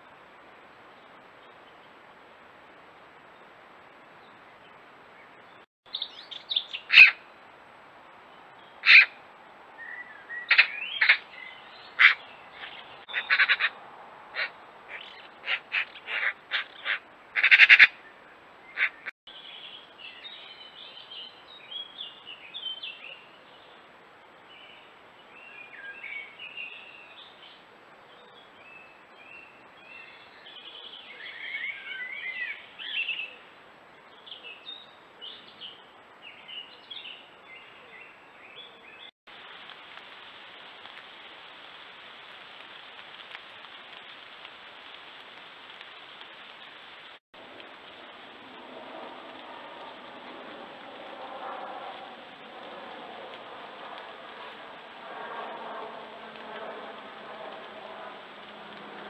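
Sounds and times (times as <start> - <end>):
small birds twittering: 4.2 - 7.3, 9.8 - 23.8
magpie harsh calls: 6.9 - 7.2, 8.8 - 9.2, 10.5 - 11.2, 12.0 - 18.0, 18.7 - 19.1.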